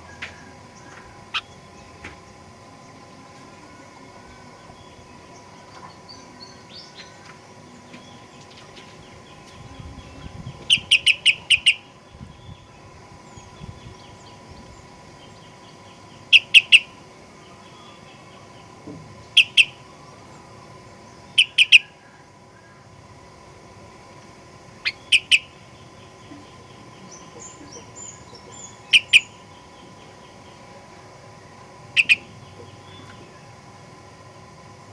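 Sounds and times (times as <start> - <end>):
soft bird chatter: 0.0 - 34.9
bird calling in rapid notes: 0.8 - 1.8, 9.8 - 12.7, 16.3 - 17.0, 19.4 - 19.9, 21.3 - 22.0, 24.8 - 30.1, 31.9 - 33.4.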